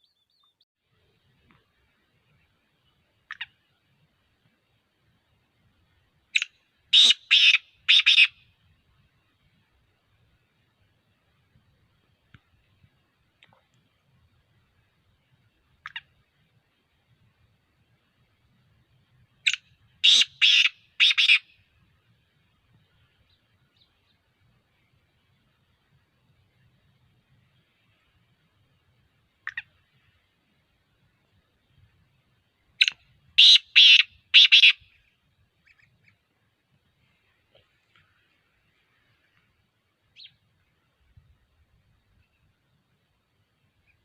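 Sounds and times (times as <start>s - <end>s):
francolin rasping calls: 6.3s - 8.5s, 19.4s - 21.6s, 29.4s - 29.9s, 32.8s - 35.0s.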